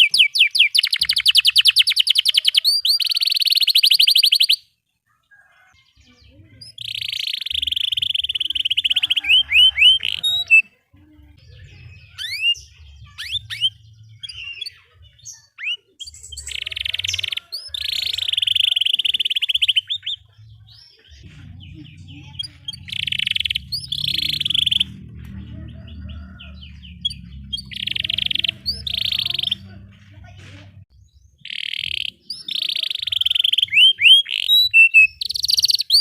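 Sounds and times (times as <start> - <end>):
canary singing trills: 0.0 - 29.9, 30.8 - 36.0
low hum: 21.2 - 30.9.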